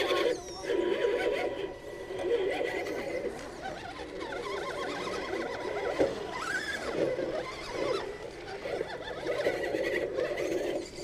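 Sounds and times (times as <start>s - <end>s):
electric motor and gearbox whining: 1.6s - 9.1s.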